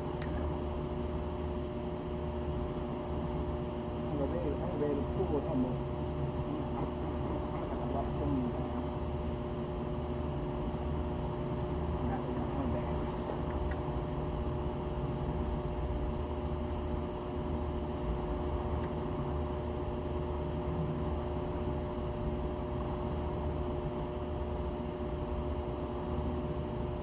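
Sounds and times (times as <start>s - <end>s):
constant two-note hum: 0.0s - 27.0s.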